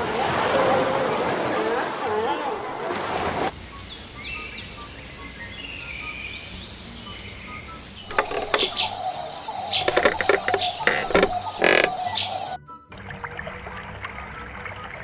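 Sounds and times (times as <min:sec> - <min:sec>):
outdoor background noise: 0:00.0 - 0:15.0
birds chirping: 0:03.7 - 0:12.6
harsh animal calls: 0:08.1 - 0:12.5.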